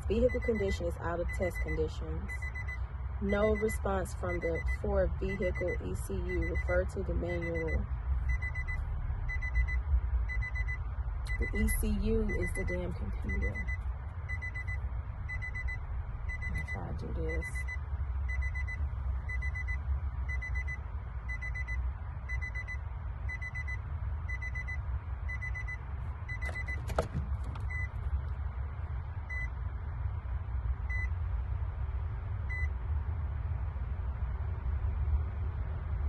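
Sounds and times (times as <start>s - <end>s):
electronic warning beeps: 0.0s - 28.0s, 29.3s - 29.6s, 30.9s - 31.1s.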